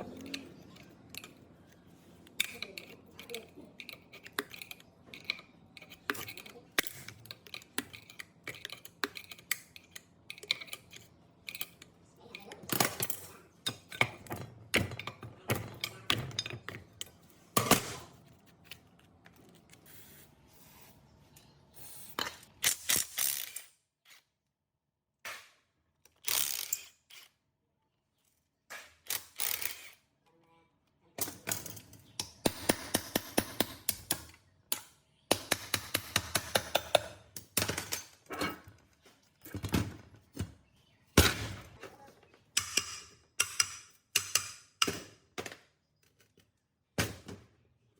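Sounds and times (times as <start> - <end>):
tools tapping on metal: 31.2 - 38.5, 42.5 - 45.6.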